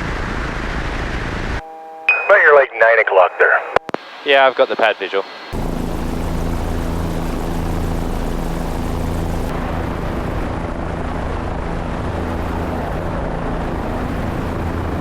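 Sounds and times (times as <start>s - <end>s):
helicopter in flight: 5.5s - 15.0s.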